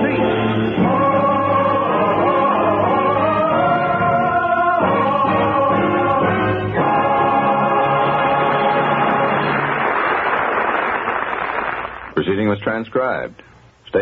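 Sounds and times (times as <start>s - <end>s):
choir singing with orchestra: 0.0s - 9.8s.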